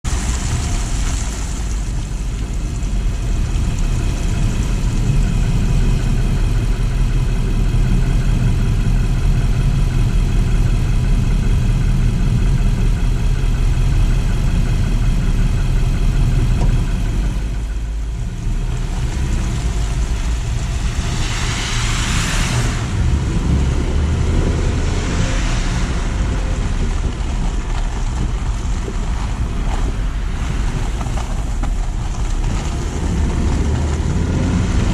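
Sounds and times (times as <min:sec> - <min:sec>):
car engine running: 0:00.0 - 0:34.9
road noise rumble: 0:00.0 - 0:34.9
surges of hiss: 0:20.7 - 0:23.0.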